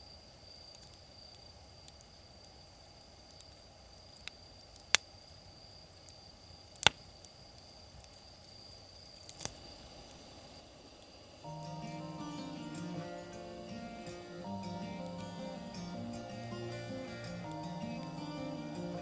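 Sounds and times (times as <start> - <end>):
quiet outdoor ambience: 0.0 - 19.0
insect high-pitched trill: 11.4 - 19.0.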